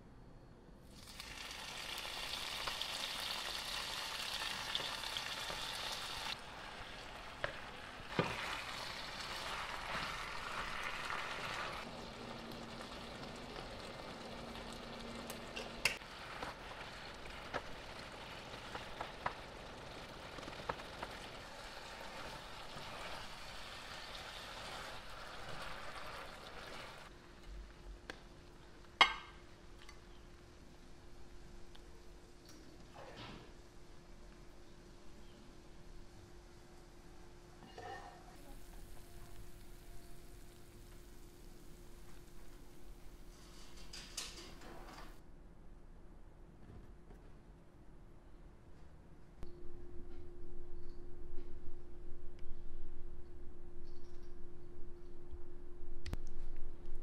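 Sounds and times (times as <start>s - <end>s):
food sizzling in a pan: 0.9s - 27.1s, 38.3s - 43.9s.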